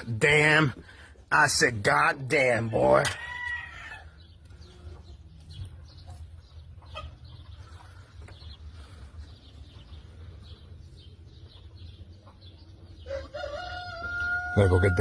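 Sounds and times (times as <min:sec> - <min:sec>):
chickens clucking: 0:02.5 - 0:15.0
steady low hum: 0:04.1 - 0:13.1.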